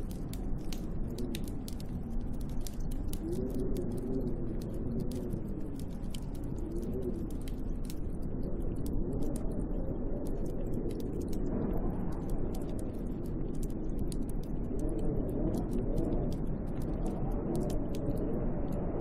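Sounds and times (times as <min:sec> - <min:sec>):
small irregular ticks: 0:00.0 - 0:19.0
snowstorm wind rushing: 0:08.3 - 0:19.0.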